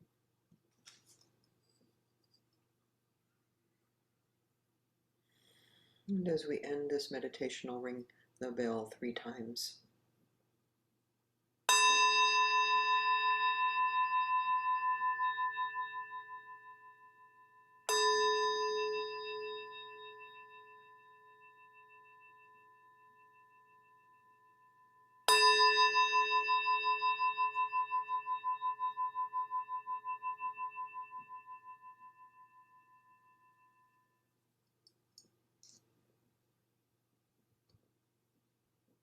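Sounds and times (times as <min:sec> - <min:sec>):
meditation bell ringing: 0:11.7 - 0:34.3.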